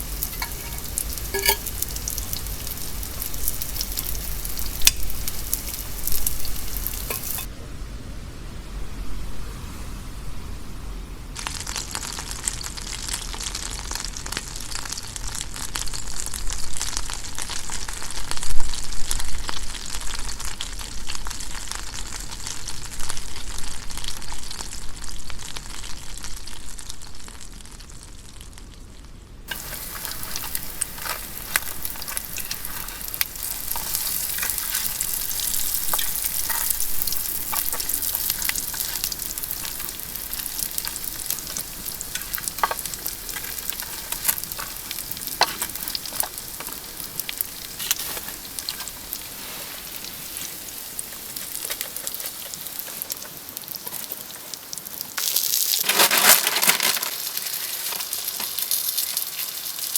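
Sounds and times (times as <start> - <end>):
sizzling and crackling: 0.0 - 7.5, 11.3 - 59.9.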